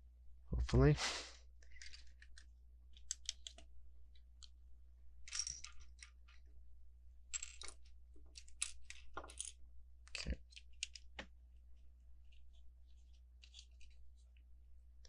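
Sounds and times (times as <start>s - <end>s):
plastic bricks clicking together: 1.8s - 3.6s.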